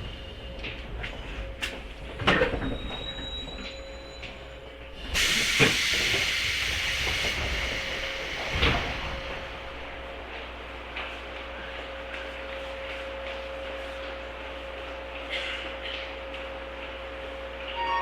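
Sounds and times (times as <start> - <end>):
train car clunk: 1.6 - 11.1
compressed air hiss: 5.2 - 9.0.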